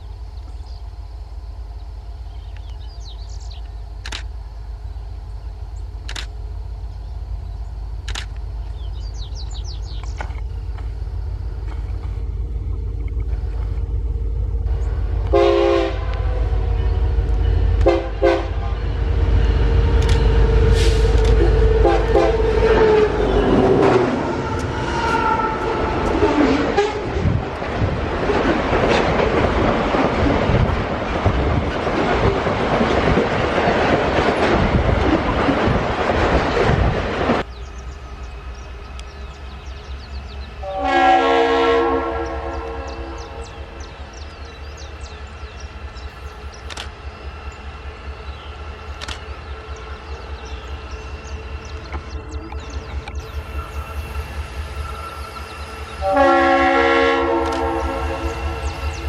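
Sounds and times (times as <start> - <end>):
locomotive rumble: 0.0 - 59.0
locomotive horn blasts: 15.2 - 27.2, 40.6 - 43.5, 56.0 - 58.8.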